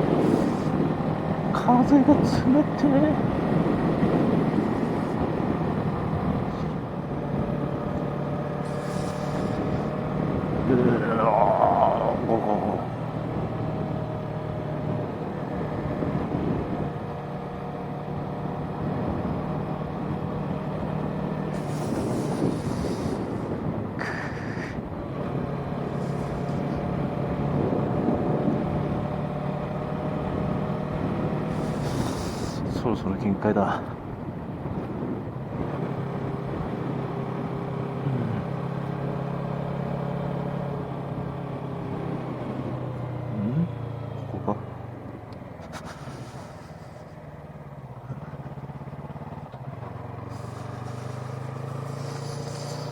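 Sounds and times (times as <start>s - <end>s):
motorcycle engine running: 0.0s - 32.8s, 33.9s - 52.9s
wind rushing over microphone: 0.0s - 52.9s
burst of high hiss: 50.3s - 52.9s.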